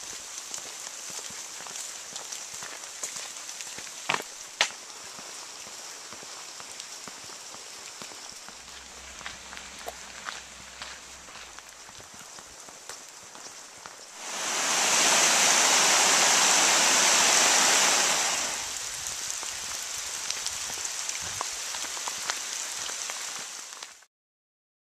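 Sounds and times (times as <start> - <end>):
rushing water: 14.1 - 24.0.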